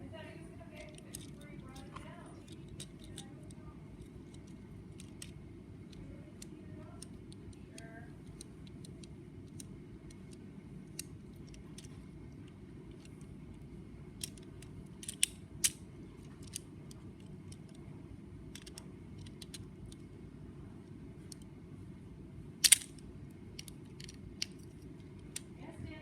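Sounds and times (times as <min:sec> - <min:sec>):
steady low hum: 0:00.0 - 0:26.0
plastic clicking of model parts: 0:00.8 - 0:13.2, 0:14.2 - 0:17.8, 0:18.5 - 0:20.1, 0:22.6 - 0:23.0, 0:23.6 - 0:25.5.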